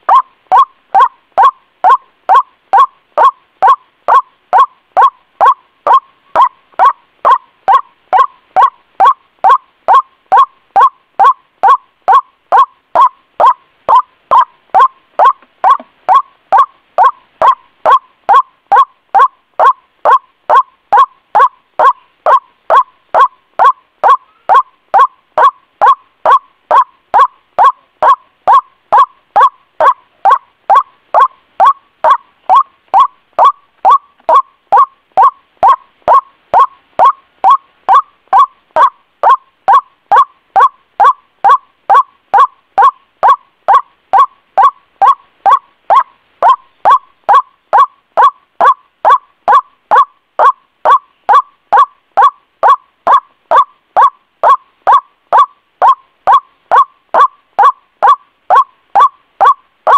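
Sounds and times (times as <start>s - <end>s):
waterhen call notes: 0.0s - 59.9s.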